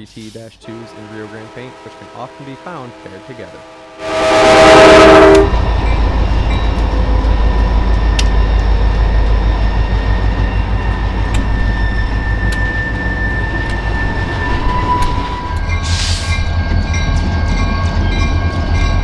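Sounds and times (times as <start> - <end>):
diesel locomotive rumbling: 0.1 - 19.0
train horn: 0.6 - 6.1
train wheels clicking: 5.3 - 19.0.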